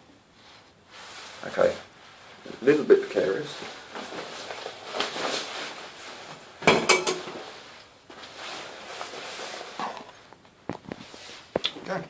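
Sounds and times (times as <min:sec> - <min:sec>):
objects knocking and rustling: 0:06.2 - 0:07.6, 0:09.1 - 0:11.7.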